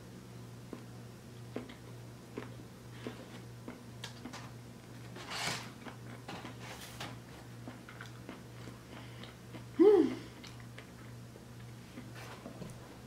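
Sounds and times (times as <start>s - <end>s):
chewing a donut: 0.7s - 4.4s, 7.4s - 12.2s
person voicing mm: 9.8s - 10.3s.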